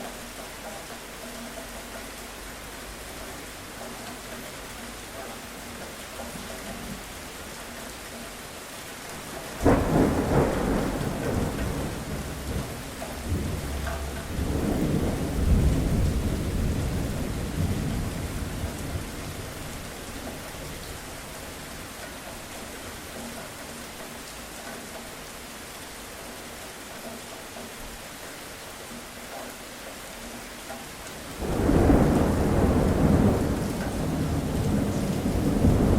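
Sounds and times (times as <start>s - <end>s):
steady rain falling: 0.0s - 35.9s
thunderclap rumbling: 9.2s - 21.8s, 31.3s - 35.9s.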